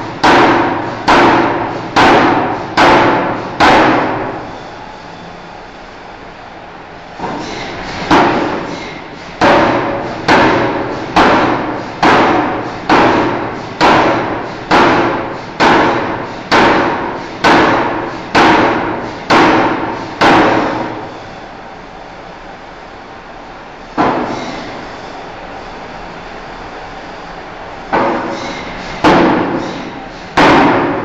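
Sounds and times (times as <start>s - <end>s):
forging hammer striking hot steel: 0.1s - 4.4s, 8.1s - 21.0s, 24.0s - 24.8s, 27.9s - 31.0s.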